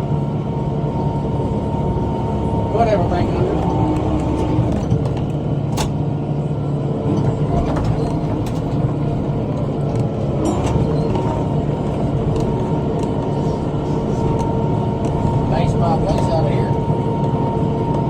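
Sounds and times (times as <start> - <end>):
tractor engine running: 0.0 - 18.0
thin steady whine: 10.4 - 18.0.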